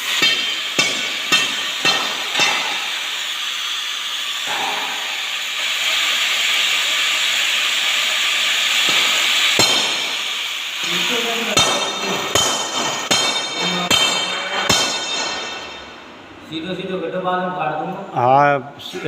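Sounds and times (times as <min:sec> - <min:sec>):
sharp metallic knocks: 0:00.0 - 0:03.0, 0:04.4 - 0:05.1, 0:08.8 - 0:10.3, 0:11.5 - 0:16.1
gas cutting torch hissing: 0:00.0 - 0:16.0.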